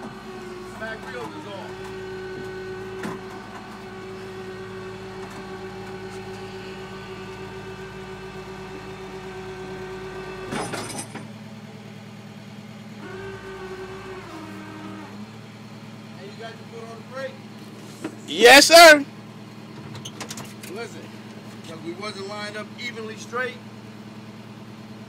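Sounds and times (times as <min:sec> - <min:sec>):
winch whining: 0:00.0 - 0:11.3, 0:12.9 - 0:17.2, 0:18.3 - 0:19.1
tow truck engine running: 0:00.0 - 0:25.0.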